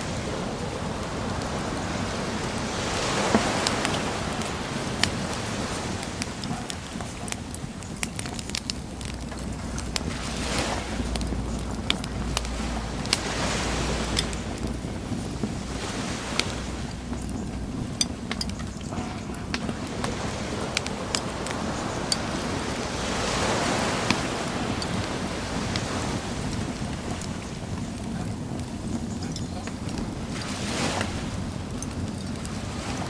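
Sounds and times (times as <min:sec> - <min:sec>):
ocean waves: 0:00.0 - 0:33.0
wood bonfire crackling: 0:00.0 - 0:33.0.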